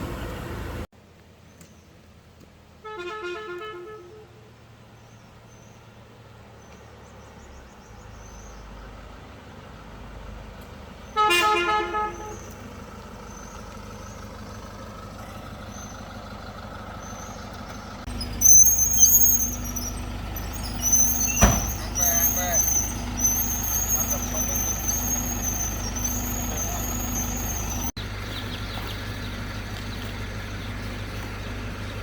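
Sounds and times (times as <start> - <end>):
engine and road hum: 0.0 - 32.0
vehicle horn honk: 2.8 - 4.4, 11.1 - 12.6, 20.8 - 27.9
high-pitched chirping: 18.1 - 27.9.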